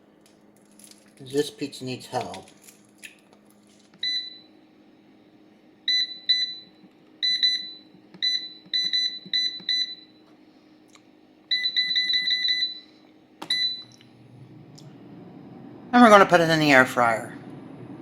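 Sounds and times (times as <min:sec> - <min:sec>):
air fryer control panel beeps: 0:04.0 - 0:04.5, 0:05.9 - 0:10.2, 0:11.5 - 0:14.0.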